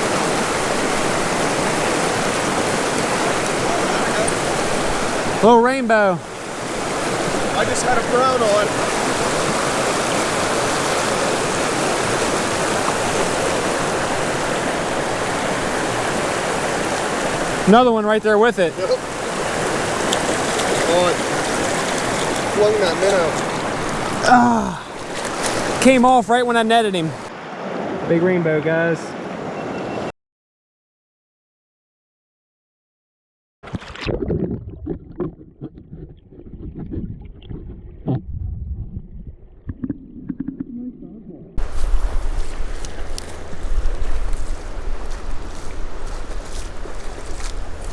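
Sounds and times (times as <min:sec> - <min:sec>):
creek water rushing: 0:00.0 - 0:29.6, 0:41.6 - 0:47.9
wind rumbling on microphone: 0:33.8 - 0:47.9.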